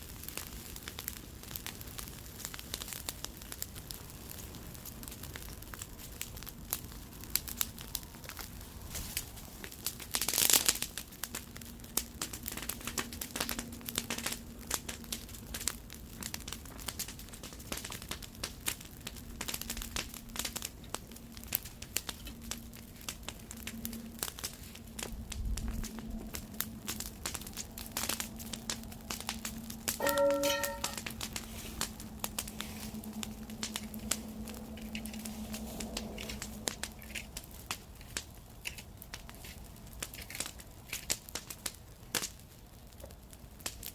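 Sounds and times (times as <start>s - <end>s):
campfire crackling and popping: 0.0s - 43.9s
steady low hum: 19.2s - 37.5s
short pitched tone: 30.0s - 31.1s.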